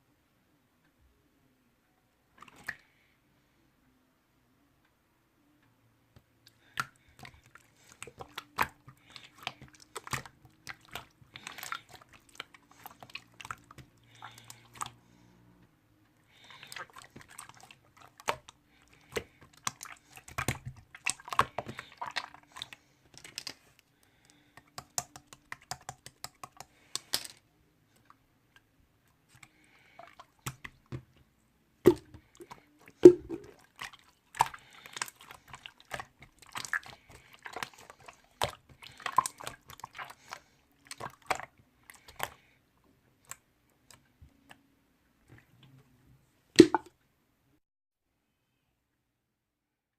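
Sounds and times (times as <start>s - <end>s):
chewing and crunching snacks: 6.5s - 15.3s, 16.3s - 27.2s, 32.2s - 42.5s.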